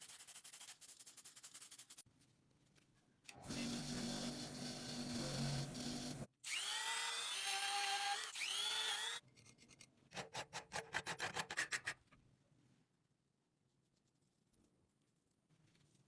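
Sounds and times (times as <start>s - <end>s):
power tool humming: 3.4s - 9.2s.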